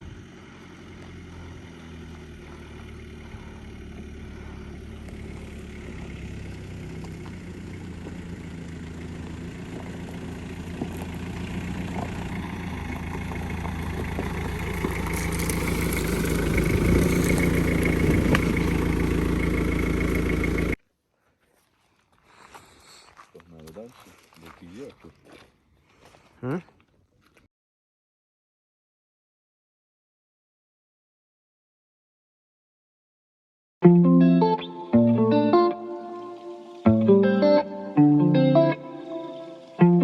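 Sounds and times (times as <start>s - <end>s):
car engine idling: 0.0s - 20.8s.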